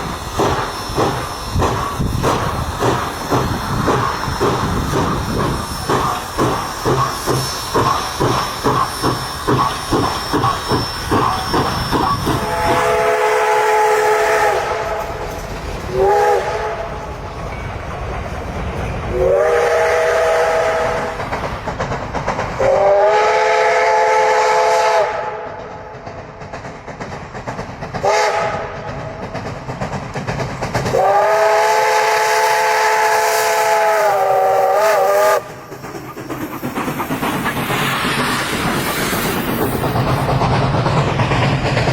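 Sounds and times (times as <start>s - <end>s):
steam hiss: 0.0s - 41.9s
steam locomotive exhaust chuffing: 0.0s - 41.9s
locomotive chime whistle blasts: 8.9s - 15.2s, 15.9s - 17.0s, 19.1s - 21.1s, 22.7s - 25.4s, 31.0s - 35.5s.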